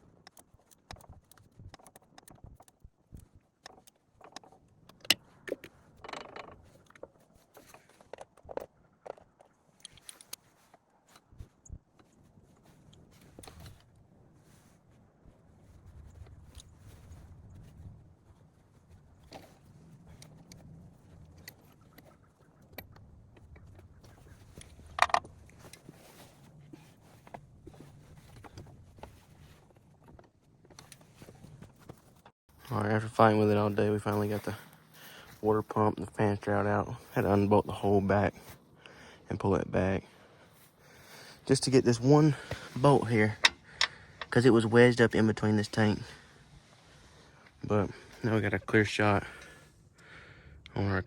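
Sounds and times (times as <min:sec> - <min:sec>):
tools and metal parts clinking: 0:03.6 - 0:10.4, 0:24.5 - 0:25.8, 0:43.2 - 0:44.4
tools clinking on metal: 0:43.3 - 0:44.4.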